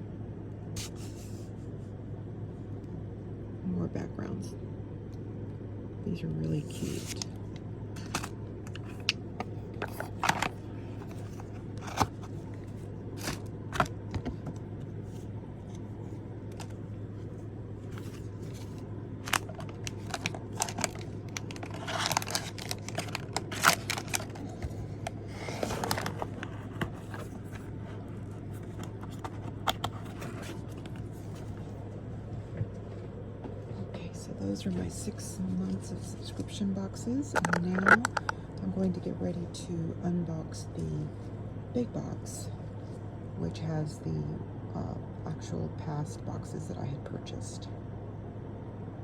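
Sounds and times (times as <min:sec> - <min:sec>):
steady low hum: 0:00.0 - 0:49.0
packaging handled on table: 0:09.8 - 0:14.6, 0:17.9 - 0:31.6.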